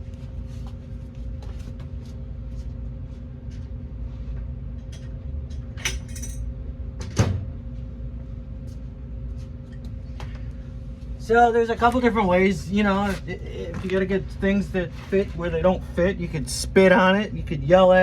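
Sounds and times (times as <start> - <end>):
steady background hum: 0.0 - 18.0
metal hardware clicking and clinking: 5.8 - 6.4.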